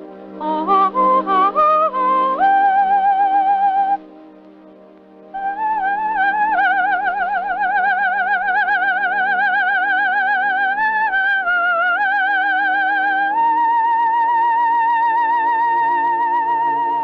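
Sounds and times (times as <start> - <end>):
sustained orchestral chords: 0.0 - 13.3
soprano singing high vocalise: 0.4 - 4.0, 5.4 - 17.0.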